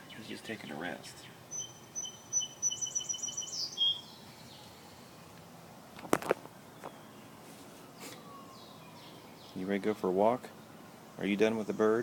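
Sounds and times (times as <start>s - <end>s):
small bird chirping trill: 0.0s - 5.0s.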